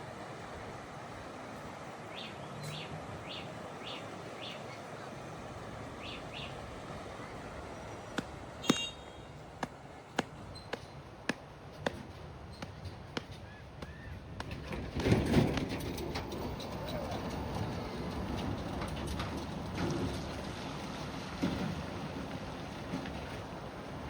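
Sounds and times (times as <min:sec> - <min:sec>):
outdoor background noise: 0:00.0 - 0:24.0
sharp knocks: 0:08.2 - 0:09.0.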